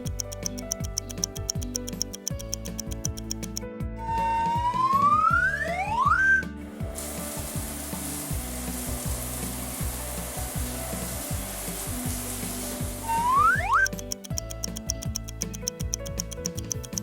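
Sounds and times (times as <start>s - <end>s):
background music with beat: 0.0s - 17.0s
rising whistle glides: 4.0s - 6.4s, 13.1s - 13.9s
water spraying from nozzle: 5.4s - 17.0s.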